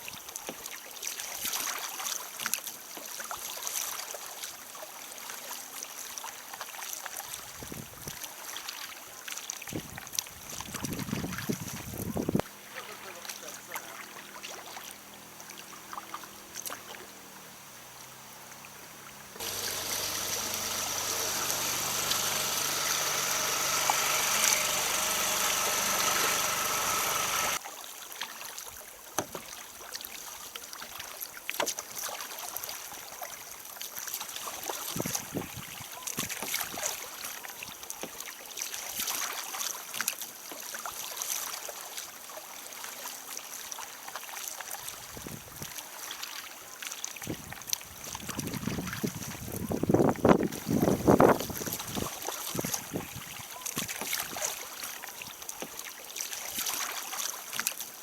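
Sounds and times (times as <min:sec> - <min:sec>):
paddle splashes: 0:12.4 - 0:17.4, 0:18.5 - 0:58.0
water slapping kayak hull: 0:18.6 - 0:27.6, 0:29.1 - 0:30.1, 0:47.2 - 0:58.0.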